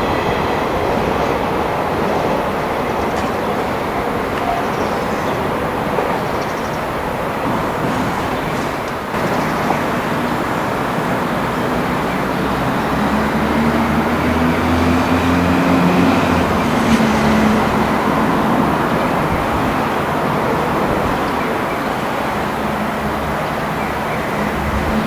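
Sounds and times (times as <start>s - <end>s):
vehicle engine rumble: 7.4s - 25.0s.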